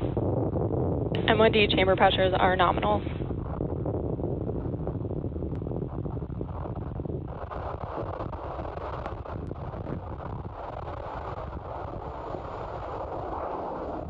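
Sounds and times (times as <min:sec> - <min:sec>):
rocket engines roaring: 0:00.0 - 0:14.0.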